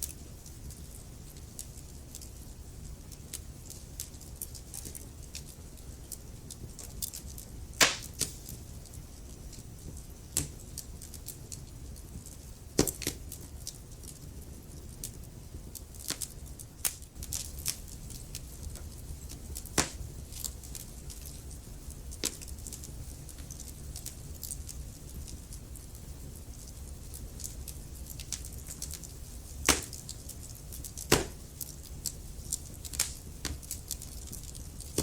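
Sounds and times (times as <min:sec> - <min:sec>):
wood fire crackling: 0:00.0 - 0:35.0
loud fire pops: 0:07.8 - 0:08.7, 0:12.8 - 0:13.3, 0:15.8 - 0:21.5, 0:22.1 - 0:35.0.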